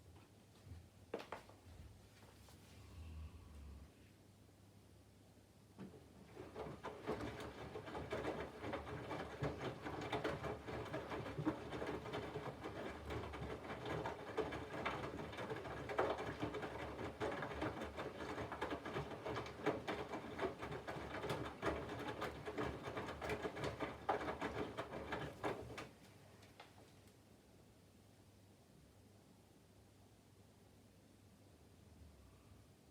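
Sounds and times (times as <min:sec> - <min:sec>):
washing machine drum turning: 0:06.2 - 0:25.9.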